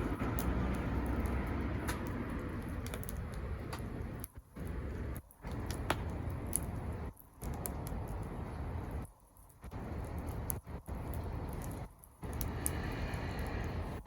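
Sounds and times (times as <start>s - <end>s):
campfire crackling: 0.0s - 14.0s
steady low rush: 0.0s - 14.0s.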